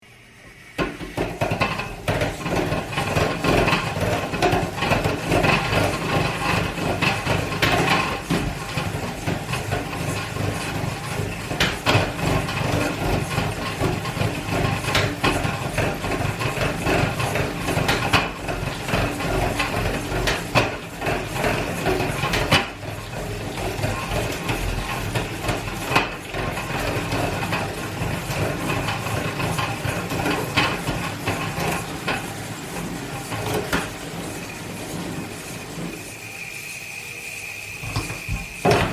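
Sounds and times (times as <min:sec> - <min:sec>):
bike trainer grinding rumble: 0:00.8 - 0:38.9.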